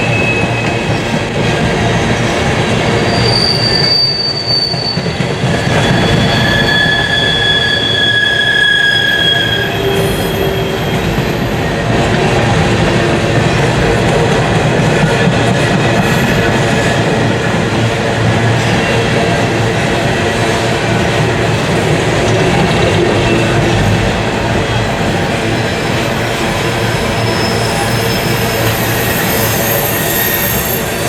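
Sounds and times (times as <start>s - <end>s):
train wheels rumbling on rails: 0.0s - 31.0s
high wheel squeal: 2.9s - 11.8s, 25.7s - 31.0s.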